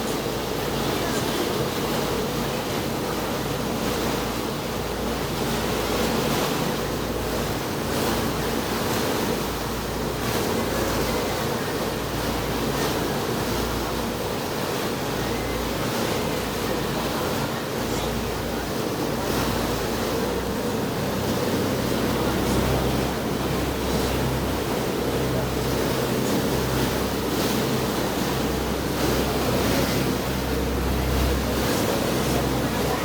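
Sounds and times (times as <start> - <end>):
low engine drone: 0.0 - 33.0
water and wind rushing: 0.0 - 33.0.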